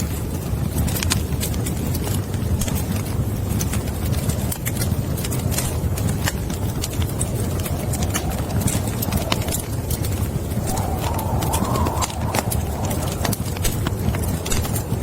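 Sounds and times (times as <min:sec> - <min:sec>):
fire crackling and popping: 0:00.0 - 0:15.0
low rumble of flames: 0:00.0 - 0:15.0
faint wavering whistle: 0:07.3 - 0:14.9.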